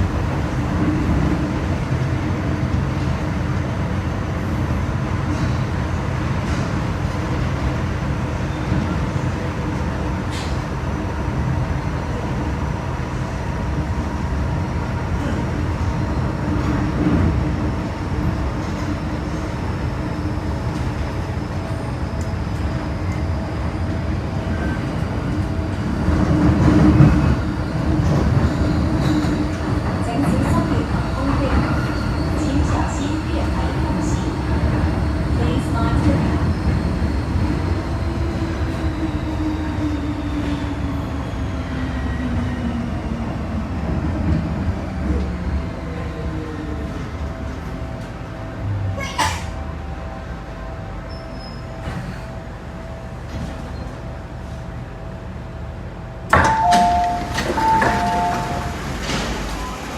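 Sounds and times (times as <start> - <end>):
train wheels rumbling: 55.6 - 59.9.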